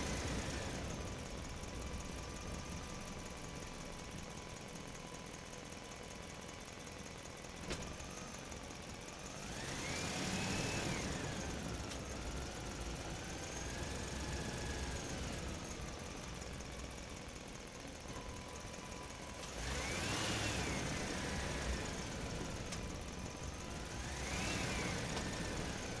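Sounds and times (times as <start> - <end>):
small motor whining: 9.2 - 17.4, 18.1 - 26.0.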